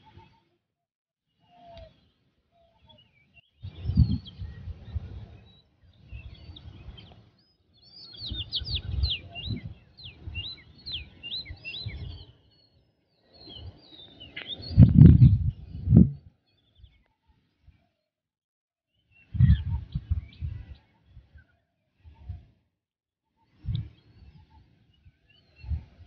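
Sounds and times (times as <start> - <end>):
small birds chirping: 1.3 - 18.1, 19.0 - 22.6, 23.3 - 26.0
low rumbling: 14.8 - 16.2.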